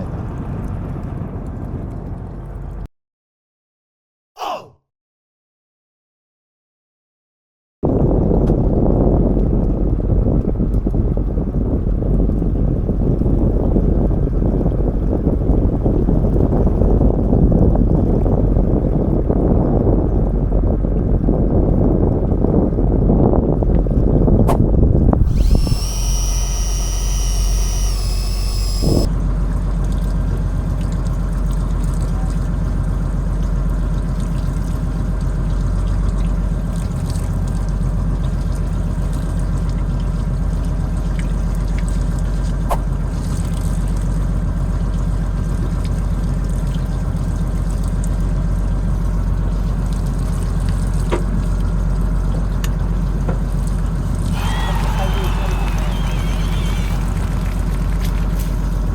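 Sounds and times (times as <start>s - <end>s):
boat engine running: 7.9s - 58.9s
high electronic tones: 25.2s - 29.1s.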